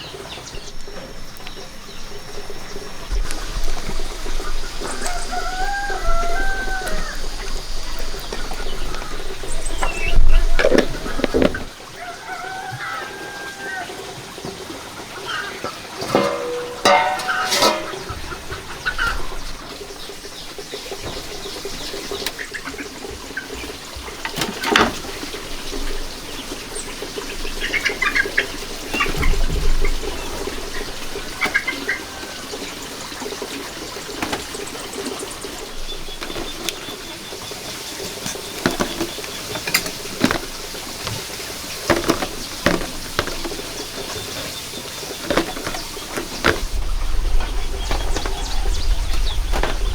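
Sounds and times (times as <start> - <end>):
chicken calling: 0.0 - 23.7
small birds chirping: 0.0 - 49.9
knocks and rustles of handling: 15.7 - 19.3, 36.1 - 49.9.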